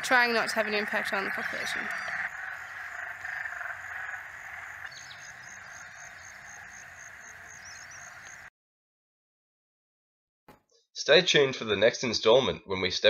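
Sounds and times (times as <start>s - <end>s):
frogs chorus calling: 0.0s - 8.5s.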